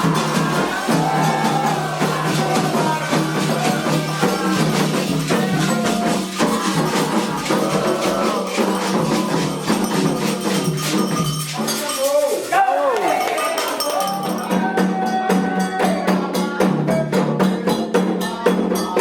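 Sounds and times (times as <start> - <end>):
person singing a melody: 0.0 - 9.6, 13.9 - 19.0
jingling shaker strokes: 0.0 - 15.8
fast hand percussion: 0.0 - 19.0.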